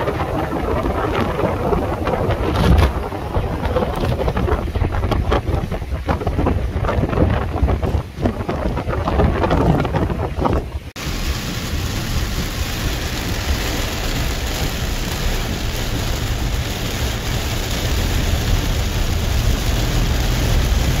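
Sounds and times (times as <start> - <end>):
wind and rain rushing: 0.0 - 21.0
wind buffeting microphone: 0.0 - 21.0.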